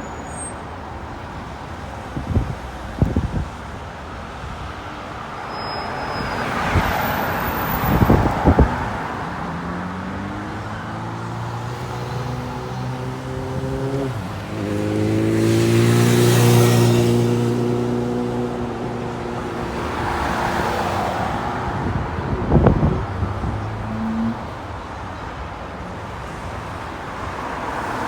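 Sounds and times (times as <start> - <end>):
vehicle passing by: 6.4 - 24.6
engine accelerating and shifting gear: 7.5 - 24.6.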